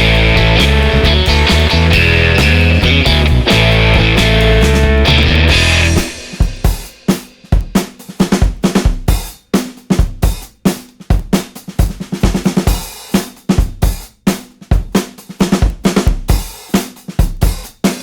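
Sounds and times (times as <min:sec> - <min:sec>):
guitars and other instruments: 0:00.0 - 0:06.5
rock drum kit playing: 0:00.0 - 0:18.0.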